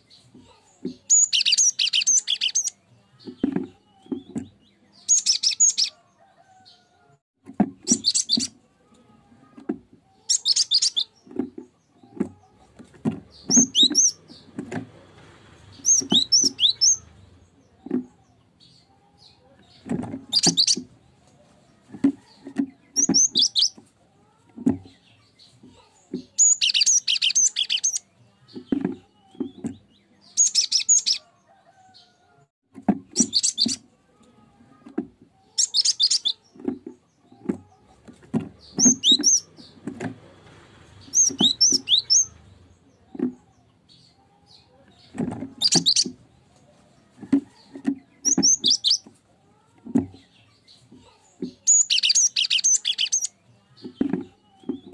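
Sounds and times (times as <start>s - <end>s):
high bird chirping: 0.9s - 6.6s, 7.8s - 8.6s, 10.2s - 12.2s, 13.3s - 14.6s, 15.7s - 17.3s, 18.6s - 20.9s, 22.9s - 23.8s, 26.2s - 31.2s, 33.1s - 33.8s, 35.5s - 36.8s, 38.5s - 39.8s, 41.0s - 43.1s, 43.9s - 46.2s, 47.6s - 49.1s, 50.2s - 54.9s.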